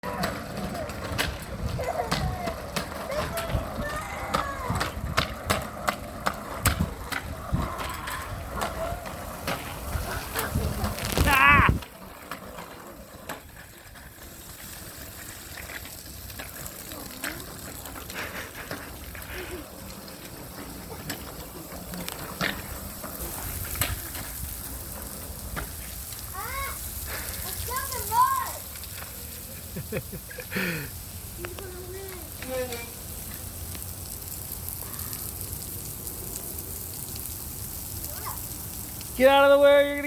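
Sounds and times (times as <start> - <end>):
bike rattling and clicking: 0.0 - 26.4
wind rushing over microphone: 6.6 - 9.0, 9.8 - 11.8.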